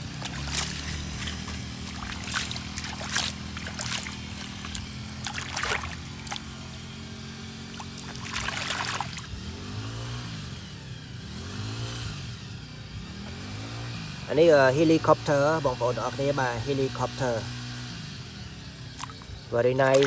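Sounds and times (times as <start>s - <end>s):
steady low hum: 0.0s - 9.7s
water trickling and splashing: 0.0s - 9.7s, 19.0s - 20.0s
engine-like sound: 0.0s - 20.0s.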